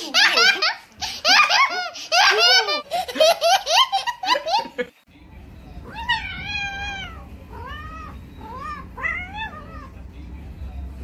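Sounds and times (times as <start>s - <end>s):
high-pitched giggling laughter: 0.0s - 4.9s
cat meowing: 5.8s - 10.0s.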